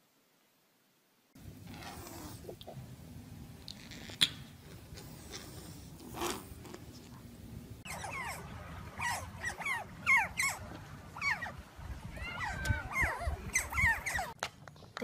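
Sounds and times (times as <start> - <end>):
otters chirping: 7.8 - 11.6, 12.2 - 14.4.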